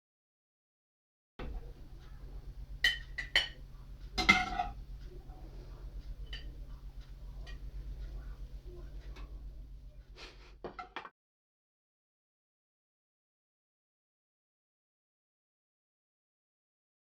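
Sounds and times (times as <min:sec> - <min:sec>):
steady low hum: 0:01.4 - 0:10.8.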